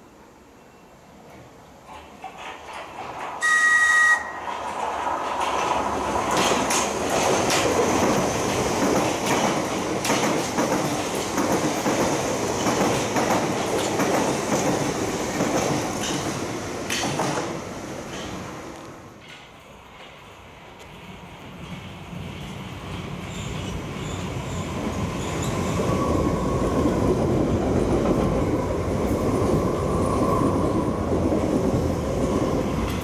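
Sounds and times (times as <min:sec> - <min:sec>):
train rumble: 0:01.2 - 0:33.0
wheels clicking over rail joints: 0:01.3 - 0:21.0
train horn blast: 0:03.4 - 0:04.4.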